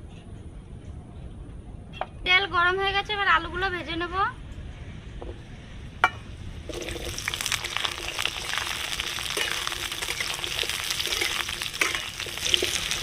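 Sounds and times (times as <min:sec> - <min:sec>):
potatoes sizzling in hot oil: 0:06.7 - 0:13.0.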